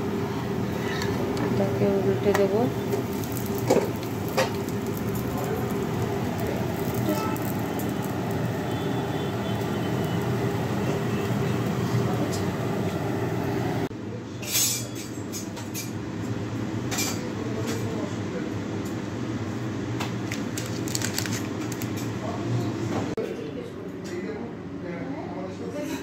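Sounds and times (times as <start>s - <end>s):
flatbread sizzling in a pan: 2.8s - 12.0s.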